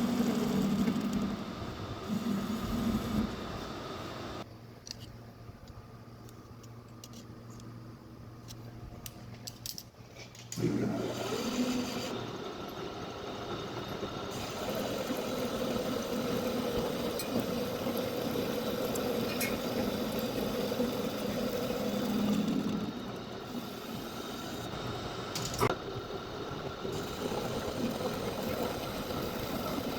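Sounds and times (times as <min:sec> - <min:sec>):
metal lathe running: 0:00.0 - 0:04.4, 0:10.6 - 0:29.9.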